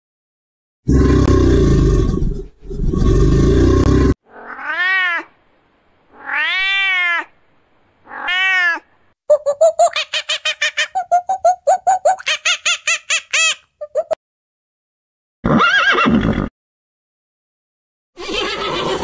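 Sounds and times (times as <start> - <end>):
deep rough animal calls: 0.9 - 4.4
cat meowing: 4.3 - 5.3, 6.1 - 7.4, 8.0 - 8.9.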